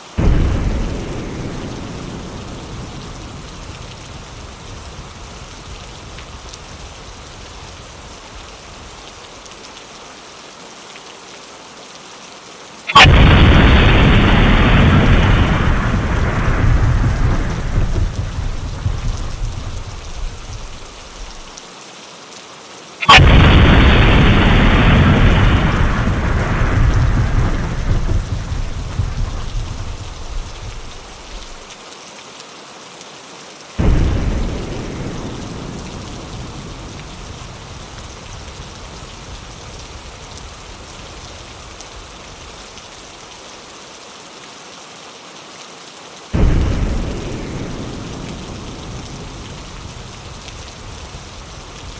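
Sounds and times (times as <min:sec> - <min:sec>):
steady rain: 0:00.0 - 0:51.9
rolling thunder: 0:00.2 - 0:09.0, 0:13.0 - 0:21.5, 0:23.1 - 0:31.7, 0:33.8 - 0:42.8, 0:46.4 - 0:51.9
sharp thunderclap: 0:00.2 - 0:09.0, 0:13.0 - 0:21.5, 0:23.1 - 0:31.7, 0:33.8 - 0:42.7, 0:46.4 - 0:51.9.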